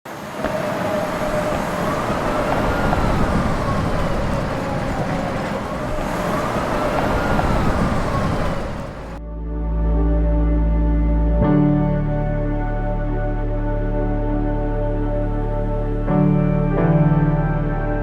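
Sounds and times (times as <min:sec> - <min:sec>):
city traffic rumble: 0:00.1 - 0:09.2
emergency siren wailing: 0:00.1 - 0:09.2.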